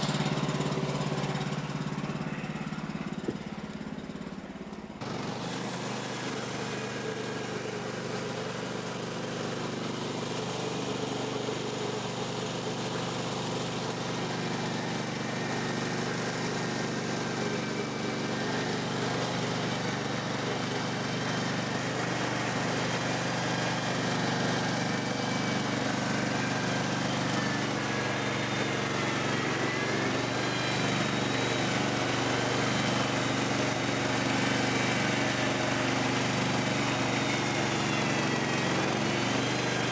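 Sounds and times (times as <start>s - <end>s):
gas engine running: 0.0s - 39.9s.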